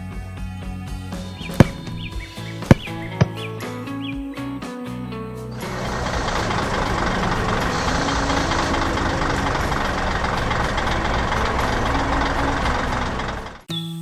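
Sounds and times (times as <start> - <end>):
heavy vehicle engine running: 1.2 - 3.5, 5.5 - 13.7.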